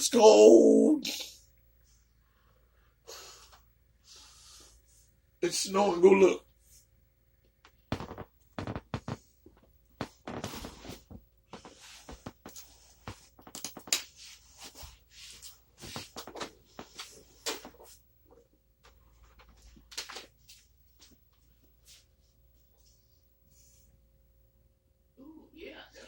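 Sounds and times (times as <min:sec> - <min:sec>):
rustling and knocks of handling: 0:07.5 - 0:23.0.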